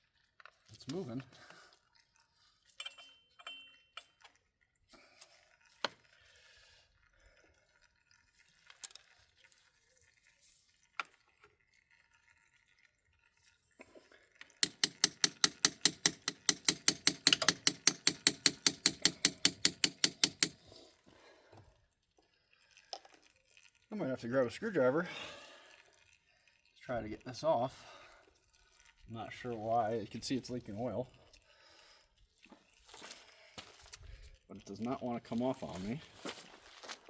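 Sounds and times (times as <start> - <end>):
tools and metal parts clicking: 2.8 - 4.2, 14.6 - 20.6
electric impact gun hammering: 14.6 - 20.6.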